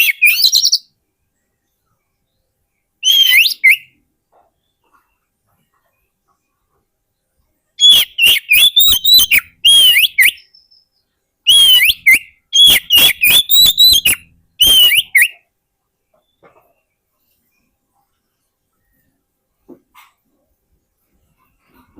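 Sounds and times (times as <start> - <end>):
bird singing whistled song: 0.0 - 0.9, 3.0 - 4.0, 7.8 - 15.5.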